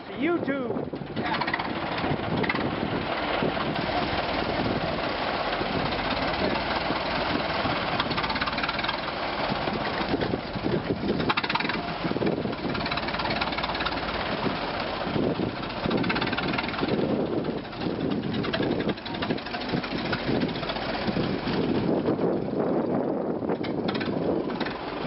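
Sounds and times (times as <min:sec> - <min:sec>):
car engine running unevenly: 0:00.8 - 0:25.0.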